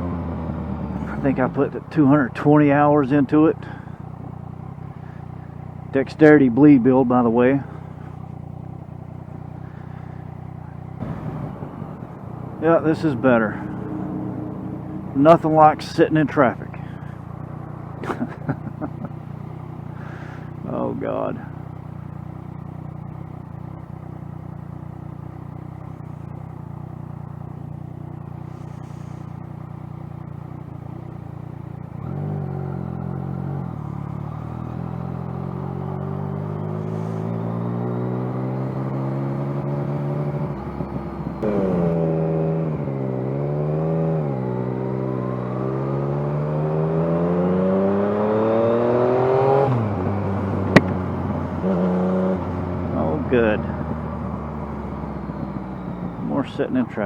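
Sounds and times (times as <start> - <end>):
motorcycle engine revving: 0.0 - 57.0
sharp click: 50.7 - 51.0.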